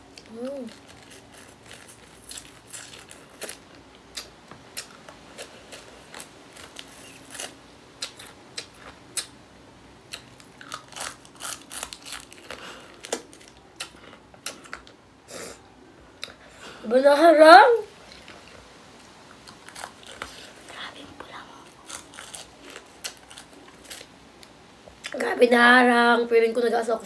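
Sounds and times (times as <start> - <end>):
person crunching ice candy: 0.1 - 9.3, 10.1 - 15.0, 19.5 - 24.1.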